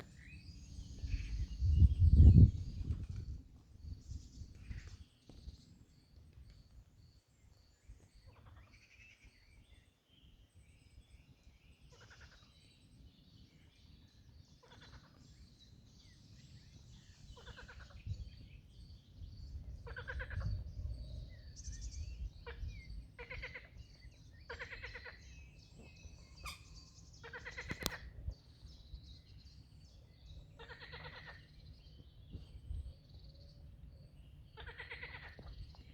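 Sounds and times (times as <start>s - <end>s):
frogs croaking: 17.4s - 18.1s, 19.8s - 20.7s, 22.4s - 25.3s, 27.2s - 28.2s, 30.6s - 31.5s, 34.5s - 35.5s.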